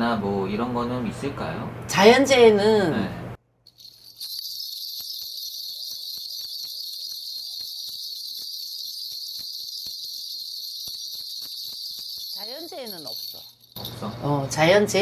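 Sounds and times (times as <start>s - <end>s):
small brass bells jingling: 3.7s - 15.0s.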